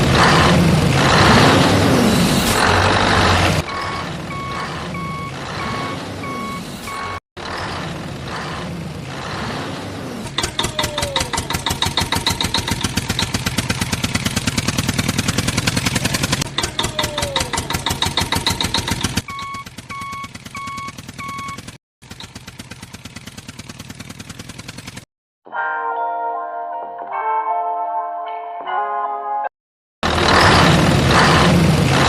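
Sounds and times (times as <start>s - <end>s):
reversing alarm beeping: 3.6s - 7.2s, 19.2s - 21.7s
tractor diesel engine chugging: 10.3s - 25.0s.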